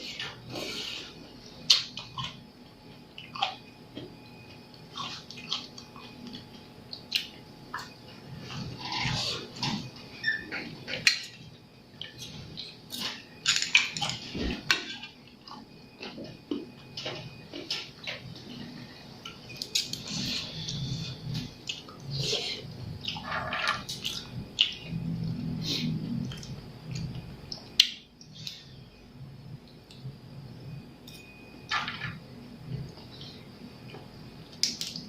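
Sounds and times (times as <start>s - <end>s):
wet chewing and slurping: 4.9s - 9.9s.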